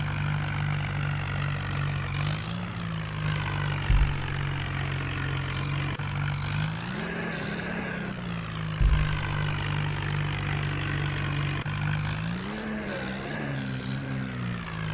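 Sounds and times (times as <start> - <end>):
tractor diesel engine revving: 0.0 - 14.9
loud low thud: 3.8 - 4.9, 8.8 - 10.0.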